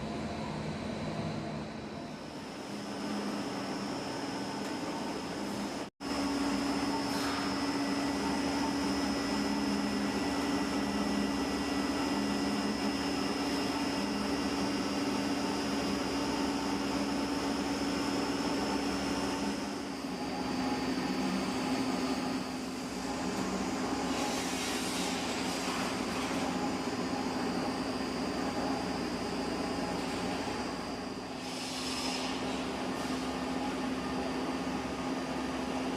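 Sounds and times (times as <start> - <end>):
factory machinery low drone: 0.0 - 35.9
machinery high whine: 0.0 - 35.9.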